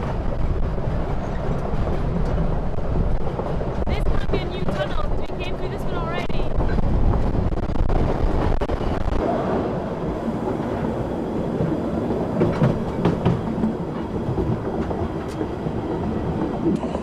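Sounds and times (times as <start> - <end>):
rumble of wheels on rails: 0.0 - 17.0
clicks over rail joints: 11.6 - 15.6.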